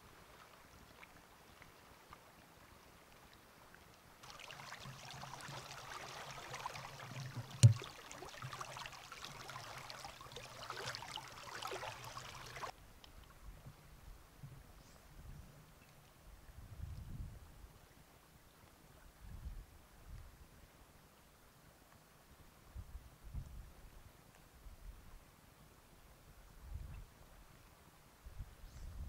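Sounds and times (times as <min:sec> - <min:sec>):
stream water trickling: 0:00.0 - 0:13.4.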